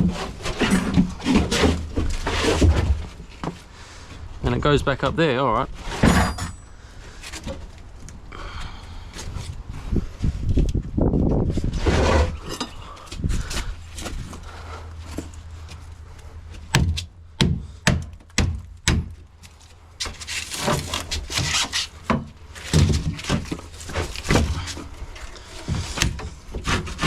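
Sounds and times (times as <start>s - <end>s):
scraping rubs: 11.4s - 16.4s.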